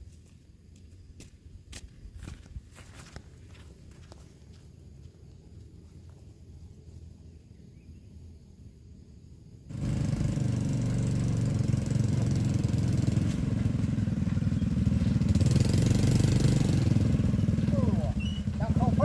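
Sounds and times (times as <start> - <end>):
small engine running: 9.7 - 19.0.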